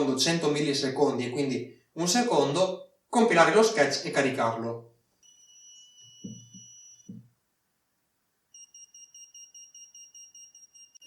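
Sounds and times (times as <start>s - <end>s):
piezo buzzer buzzing and beeping: 5.2s - 7.2s, 8.6s - 11.0s
faint low knocks: 6.2s - 7.3s.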